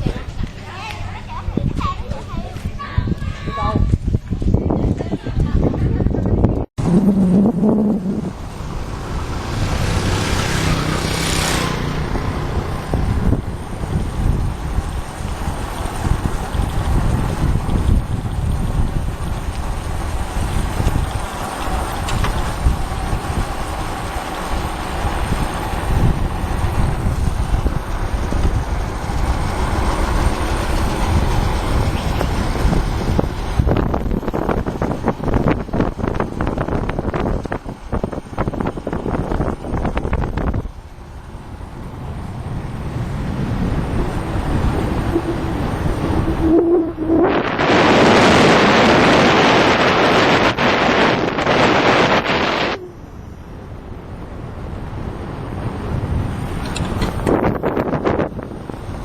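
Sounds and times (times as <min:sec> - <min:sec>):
wind noise on microphone: 0:00.0 - 0:59.0
motorbike engine running: 0:06.8 - 0:52.9.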